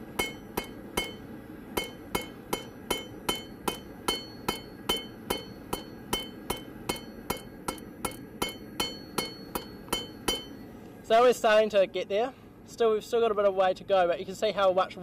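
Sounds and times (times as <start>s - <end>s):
hammer striking steel on anvil: 0.0s - 10.7s.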